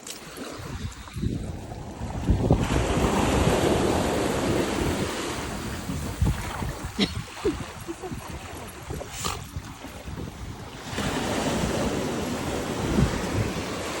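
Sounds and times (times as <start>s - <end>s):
wind buffeting microphone: 0.3s - 14.0s
wave breaking on beach: 1.7s - 8.7s, 10.7s - 14.0s.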